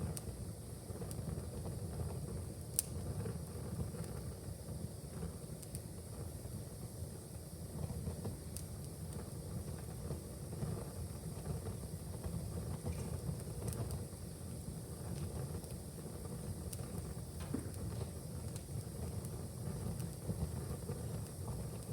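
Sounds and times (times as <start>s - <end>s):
low fire rumble: 0.0s - 21.9s
wood fire crackling: 0.1s - 21.9s
sharp pops of burning wood: 2.6s - 3.2s, 15.0s - 21.9s.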